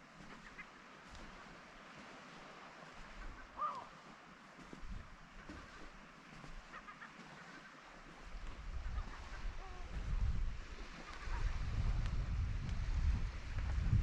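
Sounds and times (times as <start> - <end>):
seagulls calling: 0.2 - 0.8, 3.1 - 4.1, 5.4 - 7.9
wind rumbling on microphone: 4.6 - 6.8, 8.0 - 14.0.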